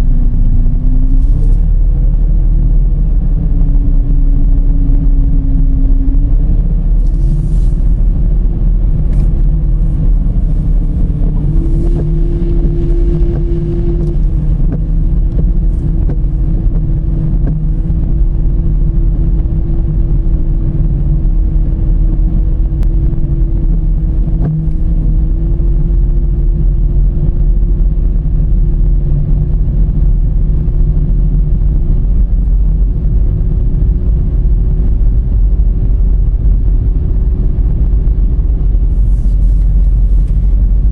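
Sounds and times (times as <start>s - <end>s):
car engine and road rumble: 0.0s - 40.9s
steady hum: 0.0s - 40.9s.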